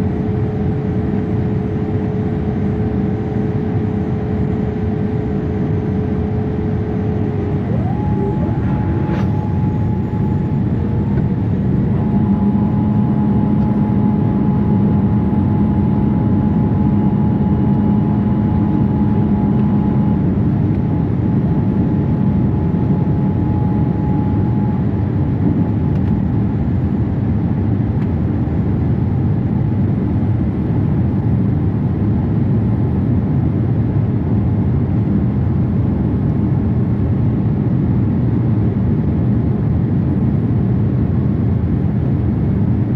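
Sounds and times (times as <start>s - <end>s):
high steady tone: 0.0s - 25.1s
airliner engine and airflow rumble: 0.0s - 42.9s
steady hum: 0.0s - 42.9s.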